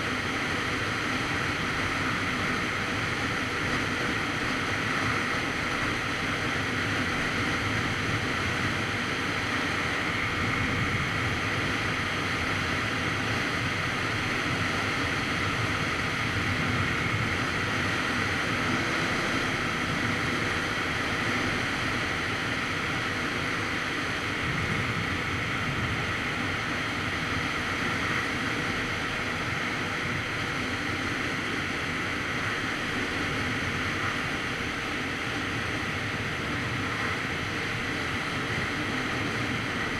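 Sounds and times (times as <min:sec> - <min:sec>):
wind buffeting microphone: 0:24.2 - 0:28.9.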